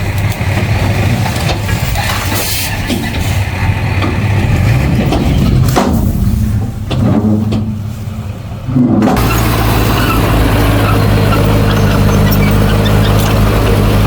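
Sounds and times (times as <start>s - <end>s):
heavy machinery diesel engine: 0.0s - 14.0s.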